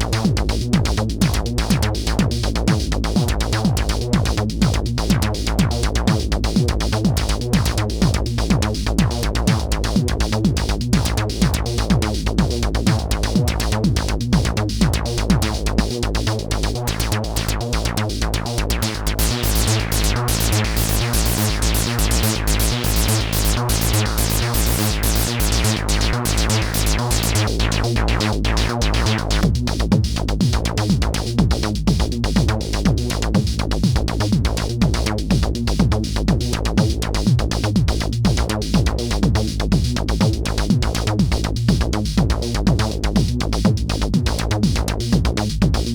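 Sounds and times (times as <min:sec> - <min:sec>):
techno with kick and bass: 0:00.0 - 0:45.9
synth lines: 0:18.7 - 0:29.4.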